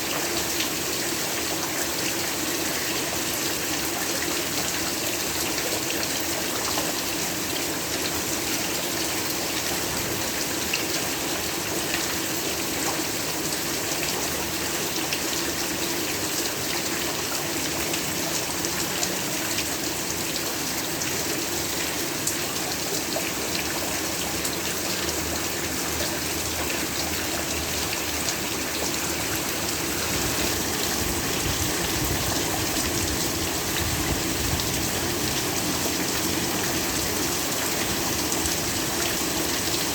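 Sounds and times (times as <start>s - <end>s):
heavy rain falling: 16.0s - 39.9s.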